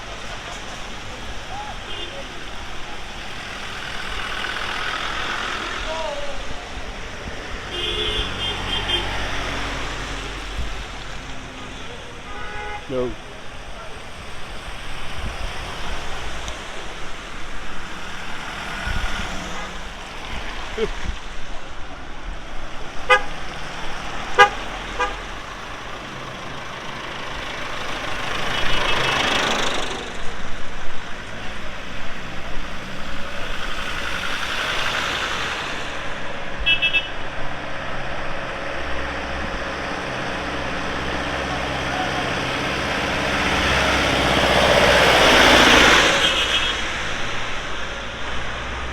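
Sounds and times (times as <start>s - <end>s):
tractors driving past: 0.0s - 48.9s
horn toots: 7.6s - 9.7s, 12.2s - 13.2s, 23.0s - 23.5s, 24.2s - 25.5s, 36.6s - 37.2s, 45.4s - 47.1s.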